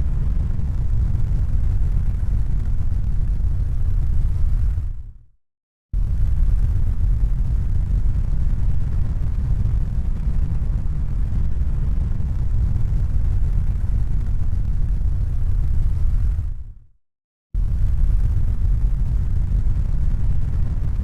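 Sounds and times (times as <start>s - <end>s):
deep rumbling noise: 0.0s - 5.1s, 17.6s - 21.0s.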